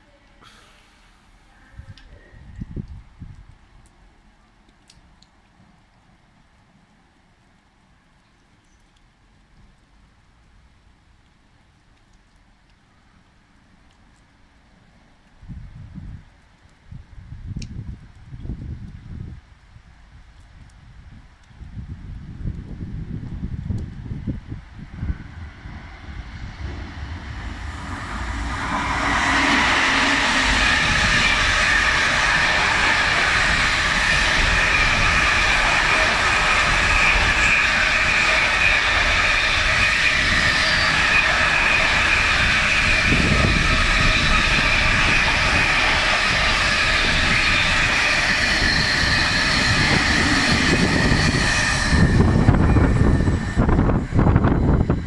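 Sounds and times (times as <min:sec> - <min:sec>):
freight train wheels rushing on rails: 0:22.7 - 0:55.0
high ringing tone: 0:26.1 - 0:55.0.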